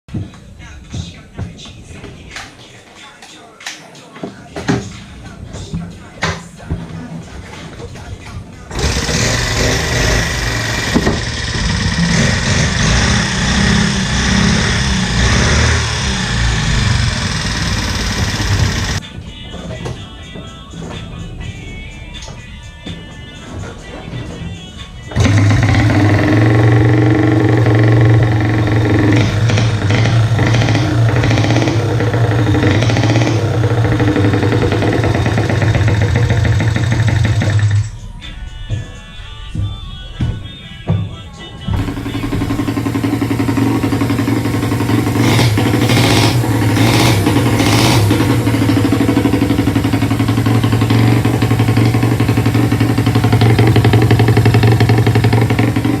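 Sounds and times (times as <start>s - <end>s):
small motorcycle engine running: 8.7s - 19.0s, 25.1s - 37.9s, 41.8s - 56.0s.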